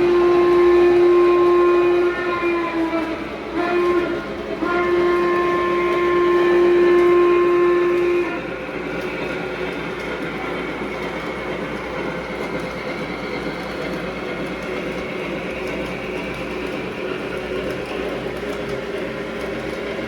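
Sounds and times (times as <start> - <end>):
model train steam whistle: 0.0 - 9.7
model locomotive running on track: 0.0 - 20.0.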